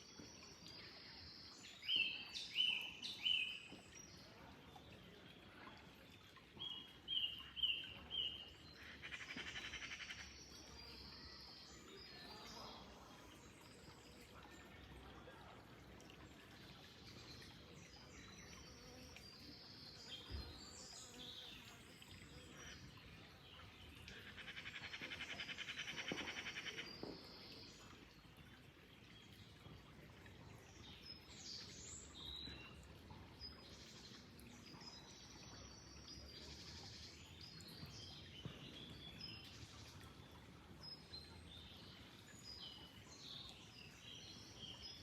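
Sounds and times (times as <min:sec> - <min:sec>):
faint flowing water: 0:00.0 - 0:45.0.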